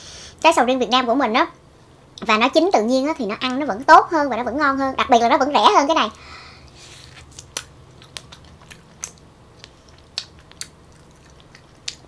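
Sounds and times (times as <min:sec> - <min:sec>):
person chewing fruit: 0:06.7 - 0:12.0.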